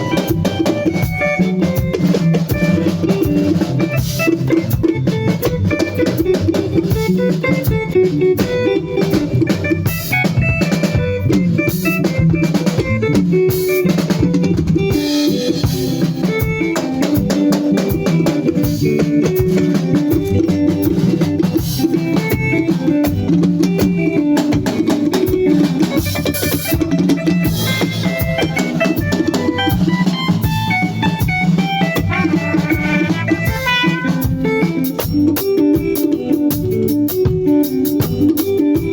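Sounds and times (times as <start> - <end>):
band playing: 0.0 - 38.9
drum kit: 0.0 - 38.9.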